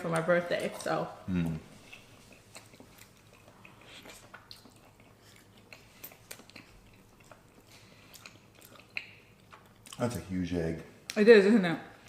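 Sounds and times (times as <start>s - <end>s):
person chewing soft food: 1.2s - 10.2s.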